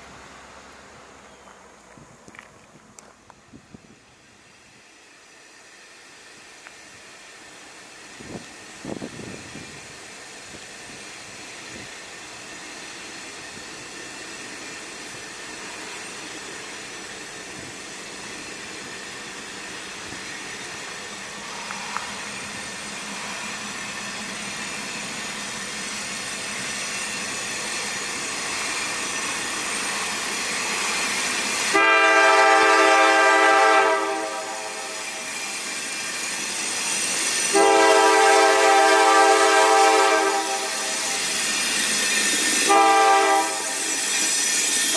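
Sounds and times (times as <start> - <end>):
diesel train approaching: 0.0 - 44.9
locomotive air horn blast: 31.7 - 35.2, 37.5 - 41.2, 42.6 - 43.9.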